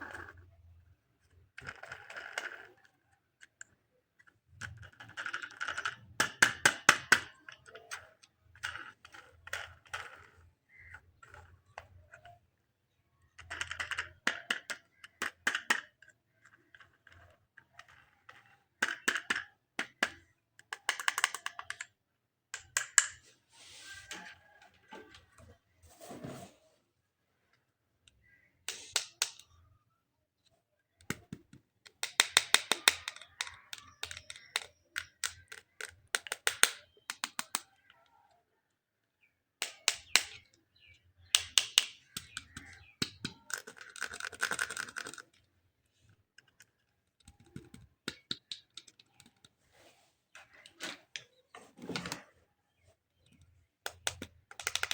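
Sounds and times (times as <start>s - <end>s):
plastic pieces clicking and crackling: 0.0s - 12.4s, 13.2s - 22.0s, 22.6s - 23.2s, 28.1s - 29.8s, 31.0s - 38.1s, 39.6s - 49.6s, 53.2s - 54.9s.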